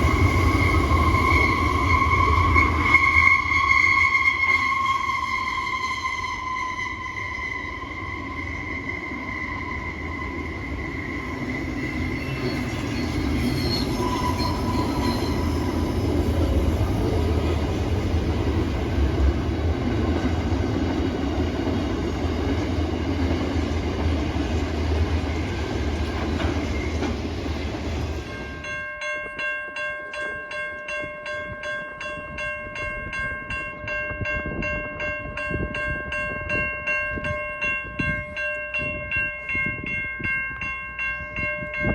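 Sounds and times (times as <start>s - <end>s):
train horn: 0.0s - 16.0s
train rumbling past: 0.0s - 29.1s.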